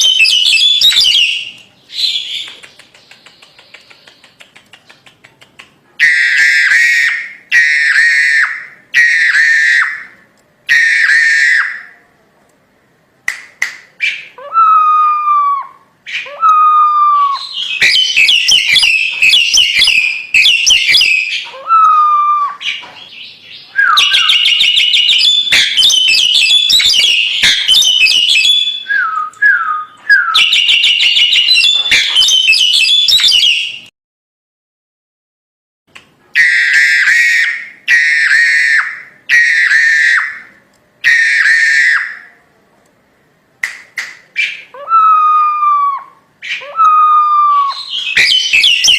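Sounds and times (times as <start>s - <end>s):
bird whistling and chattering: 0.0s - 10.1s, 14.0s - 33.9s, 44.3s - 48.9s.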